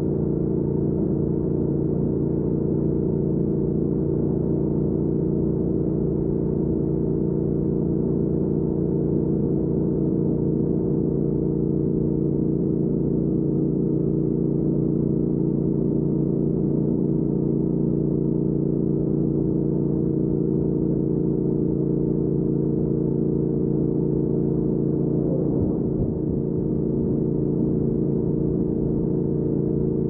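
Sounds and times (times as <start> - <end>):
motorcycle engine cruising: 24.1 - 30.0.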